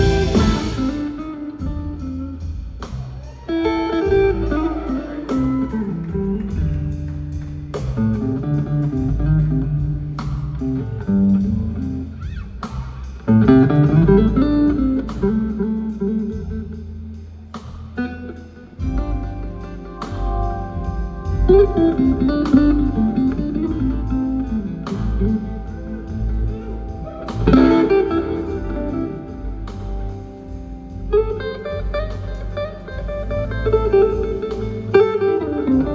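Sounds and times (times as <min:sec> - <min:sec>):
sharp percussive hit: 0:00.0 - 0:01.3
low bass line: 0:00.0 - 0:35.9
slow blues guitar: 0:00.0 - 0:35.9.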